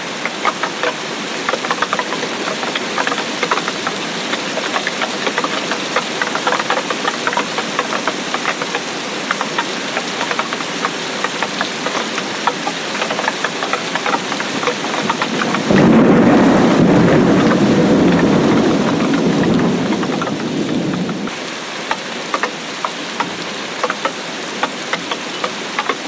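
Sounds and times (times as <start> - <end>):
rain drops striking: 0.0 - 26.0
low thunder rumble: 15.0 - 21.3.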